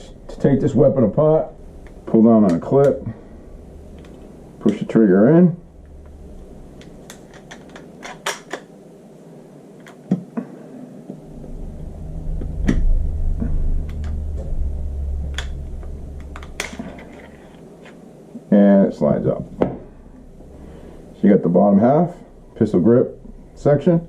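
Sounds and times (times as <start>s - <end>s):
low handling rumble: 0.0s - 7.9s, 11.2s - 18.2s, 19.0s - 21.2s.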